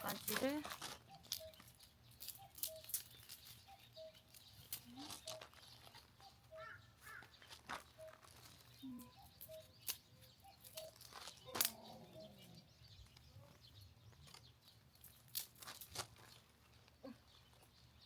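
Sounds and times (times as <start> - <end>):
dry twigs snapping: 0.0 - 3.6, 8.4 - 12.0, 15.0 - 16.3
faint bird chirps: 1.0 - 15.2.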